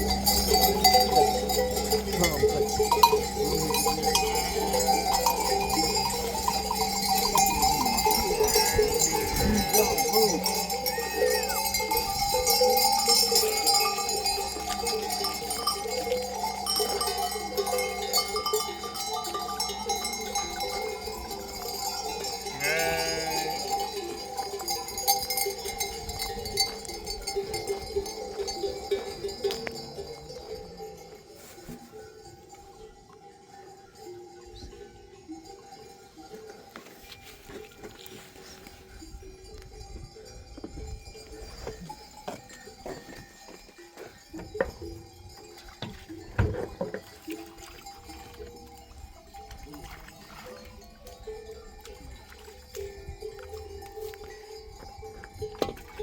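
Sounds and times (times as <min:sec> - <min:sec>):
sheep bells clinking: 0:00.0 - 0:56.0
sheep bleating: 0:07.3 - 0:11.6, 0:22.5 - 0:23.8.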